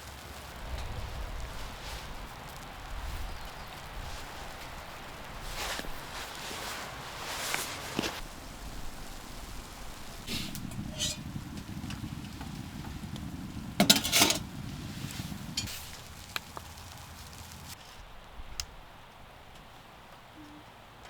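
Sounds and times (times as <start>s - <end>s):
metal cookware clinking: 10.8s - 11.3s, 13.8s - 14.5s.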